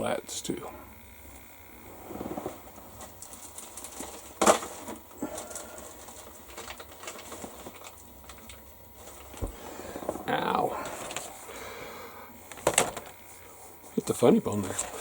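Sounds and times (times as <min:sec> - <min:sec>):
plastic rustling and clicking: 0:02.3 - 0:10.2
plastic clatter: 0:02.4 - 0:10.2, 0:12.5 - 0:13.1.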